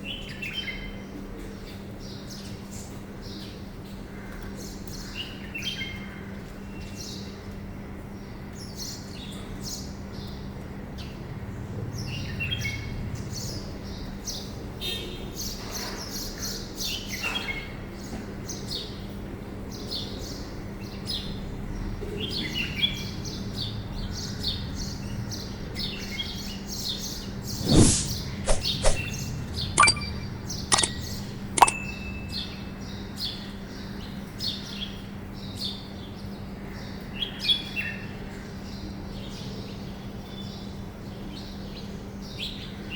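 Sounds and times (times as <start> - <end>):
birds chirping: 27.5 - 32.2
sharp clicks: 29.8 - 31.8.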